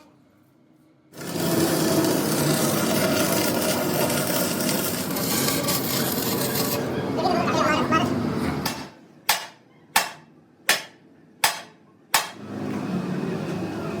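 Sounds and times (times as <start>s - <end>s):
loud steady rasping noise: 1.1s - 7.6s.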